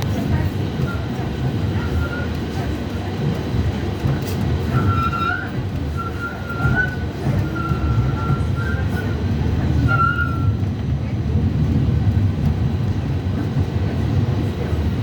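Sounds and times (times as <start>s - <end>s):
tram rumbling on rails: 0.0s - 15.0s
tram wheels squealing: 0.7s - 2.8s, 3.5s - 10.9s.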